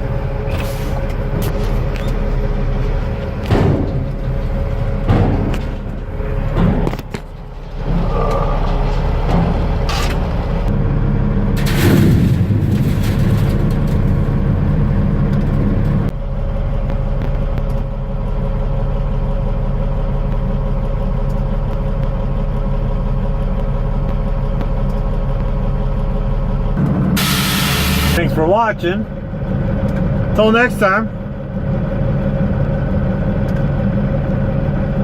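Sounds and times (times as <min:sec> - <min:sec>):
truck diesel engine running: 0:00.0 - 0:35.0
air hiss: 0:27.2 - 0:28.2.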